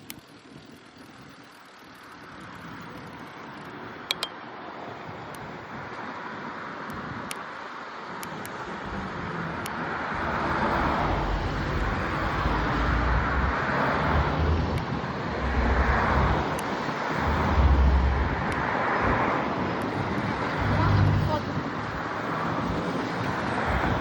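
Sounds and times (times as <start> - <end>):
wind rushing over microphone: 2.4 - 24.0.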